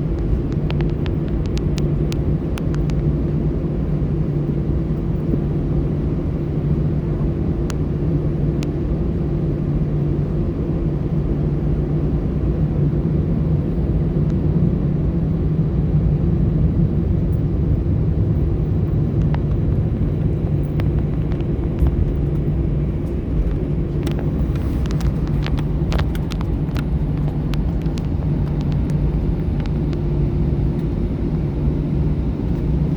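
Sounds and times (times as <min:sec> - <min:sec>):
aircraft cabin engine drone: 0:00.0 - 0:32.9
light clicks and rattles: 0:18.9 - 0:30.0.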